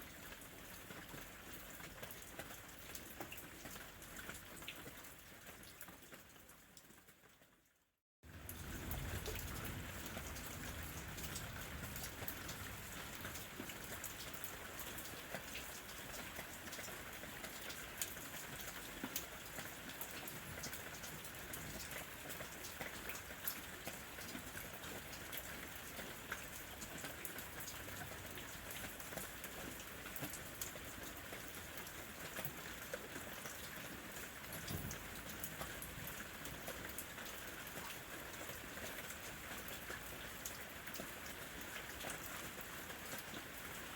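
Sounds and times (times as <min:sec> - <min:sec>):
raindrops pattering on leaves: 0:00.0 - 0:07.7, 0:08.3 - 0:43.9
steady rain hiss: 0:08.3 - 0:16.7.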